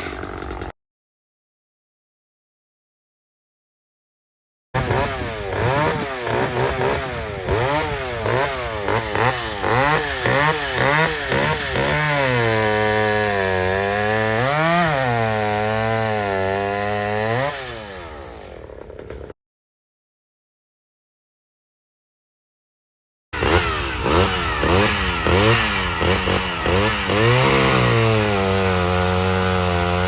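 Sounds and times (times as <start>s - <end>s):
chainsaw revving: 0.0s - 0.7s, 4.8s - 19.4s, 23.4s - 30.0s.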